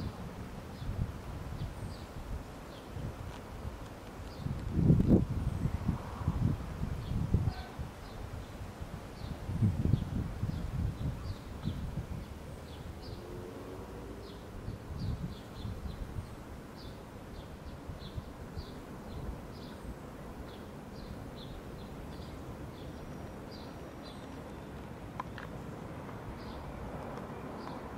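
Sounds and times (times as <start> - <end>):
small birds chirping: 1.6 - 3.4, 4.2 - 5.8, 9.2 - 13.4, 14.2 - 26.7.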